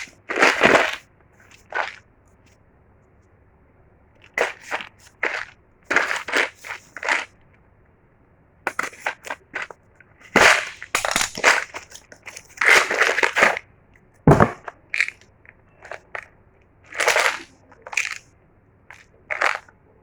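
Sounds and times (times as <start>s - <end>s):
packaging crinkling and crunching: 0.0s - 2.0s, 4.3s - 7.3s, 10.3s - 13.6s, 16.9s - 18.2s, 18.9s - 19.7s.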